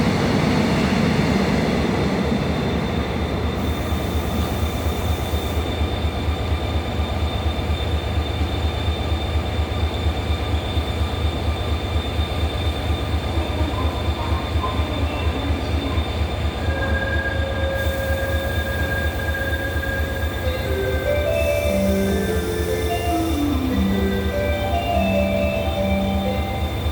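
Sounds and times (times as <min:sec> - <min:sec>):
train low rumble: 0:00.0 - 0:26.9
steady tones: 0:16.4 - 0:26.9.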